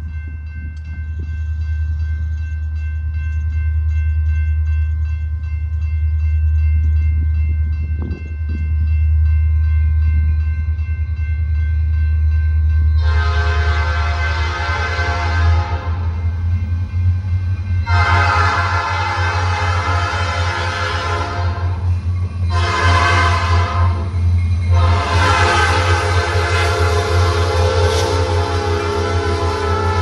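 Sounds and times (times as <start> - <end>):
music: 0.0 - 13.1
diesel locomotive rumbling: 0.0 - 30.0
high ringing tones: 21.7 - 26.8.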